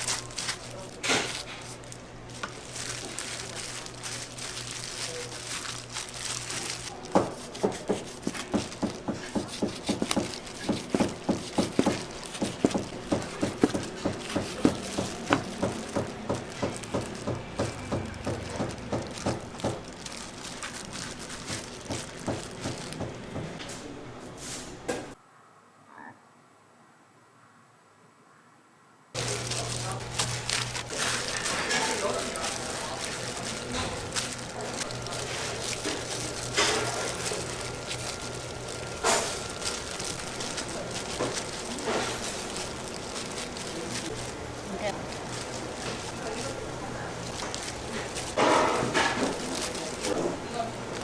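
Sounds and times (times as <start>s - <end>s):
knife chopping on cutting board: 7.1s - 19.8s.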